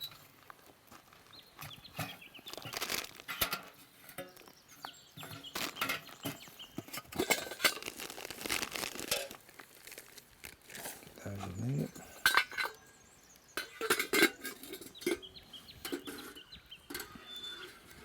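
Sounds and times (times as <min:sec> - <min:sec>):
crinkling and rustling: 0:00.0 - 0:12.8
cooking gear clicks and clinks: 0:01.4 - 0:18.0.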